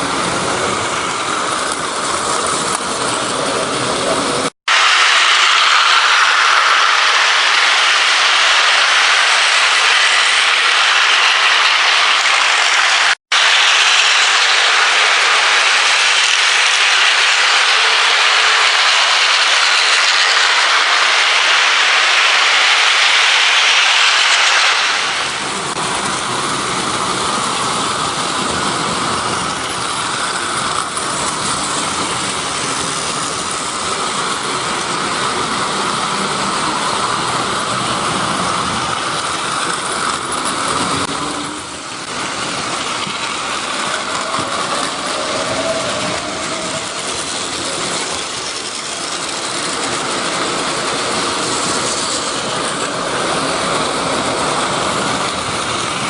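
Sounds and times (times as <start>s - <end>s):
train rolling along track: 0.0s - 56.0s.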